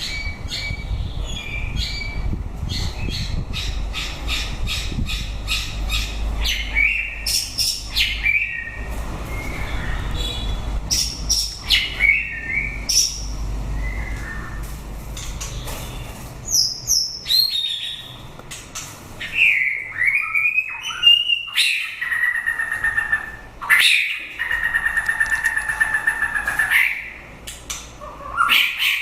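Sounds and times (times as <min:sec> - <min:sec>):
bird singing whistles and trills: 0:06.4 - 0:14.6, 0:19.2 - 0:27.1.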